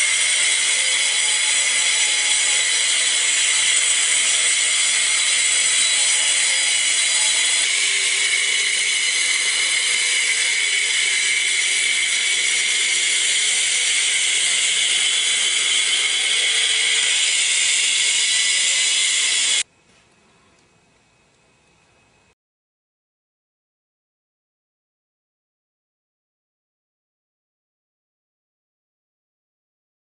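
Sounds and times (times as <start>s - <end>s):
wall chaser cutting with whine: 0.0s - 19.7s.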